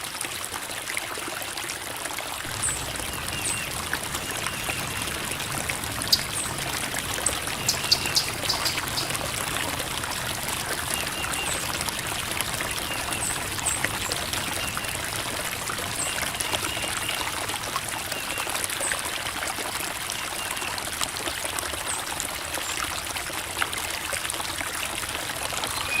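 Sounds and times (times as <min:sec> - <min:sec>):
creek water flowing over rocks: 0:00.0 - 0:26.0
water splashes: 0:00.0 - 0:26.0.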